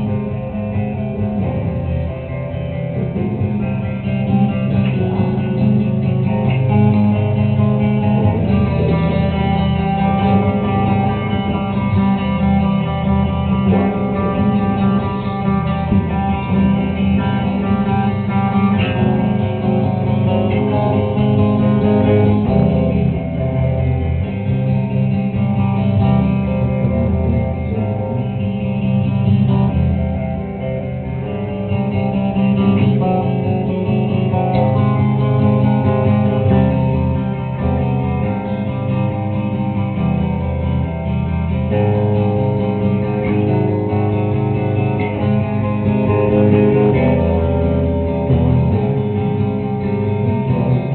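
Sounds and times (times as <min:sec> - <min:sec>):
slow instrumental guitars: 0:00.0 - 0:50.9.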